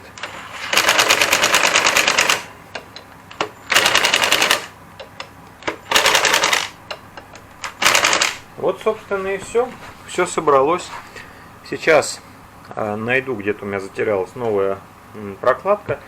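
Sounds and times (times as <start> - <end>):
impact driver hammering: 3.7 - 4.7, 5.6 - 7.0, 7.7 - 8.4.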